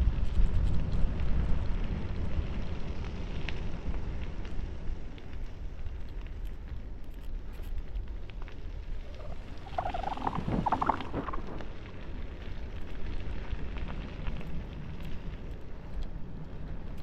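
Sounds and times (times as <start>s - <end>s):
bicycle rolling rumble: 0.0s - 17.0s
wavering pitched sound: 9.1s - 11.6s.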